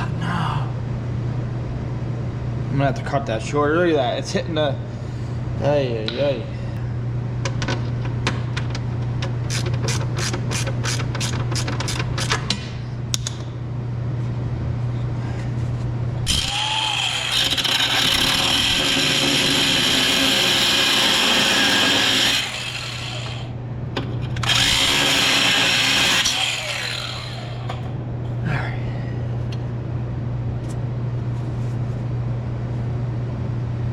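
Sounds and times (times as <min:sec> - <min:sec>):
power cutting tool grinding: 0:16.2 - 0:23.5, 0:24.4 - 0:27.9.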